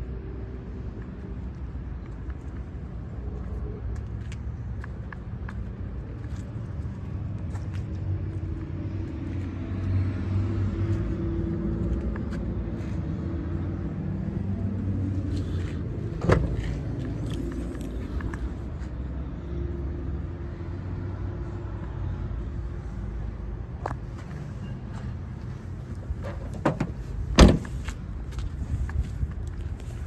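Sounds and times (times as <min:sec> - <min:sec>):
motor vehicle rumbling: 0:00.0 - 0:30.0.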